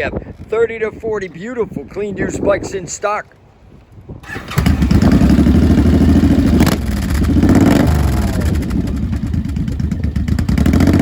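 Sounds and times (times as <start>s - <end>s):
motorcycle engine revving: 4.2s - 11.0s.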